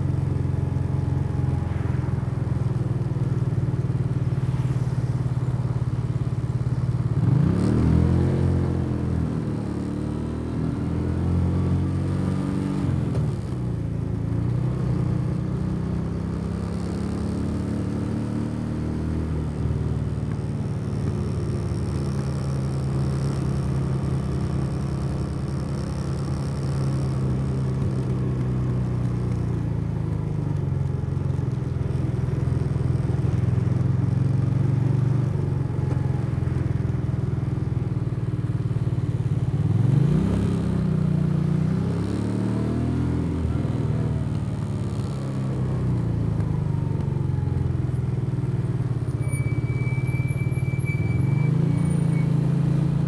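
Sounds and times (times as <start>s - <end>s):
motorcycle engine running: 19.3s - 49.4s.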